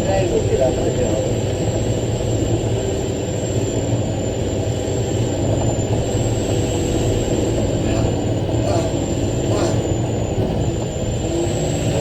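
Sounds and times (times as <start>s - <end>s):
truck diesel engine labouring: 6.9s - 12.0s.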